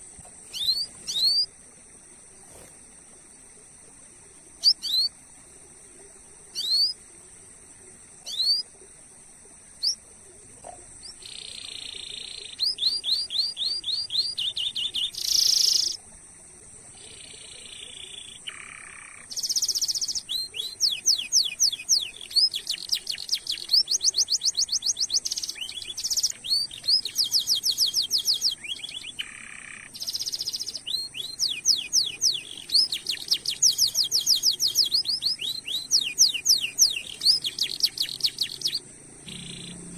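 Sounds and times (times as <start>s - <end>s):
canary singing: 0.0s - 1.5s, 11.0s - 16.0s, 16.9s - 39.9s.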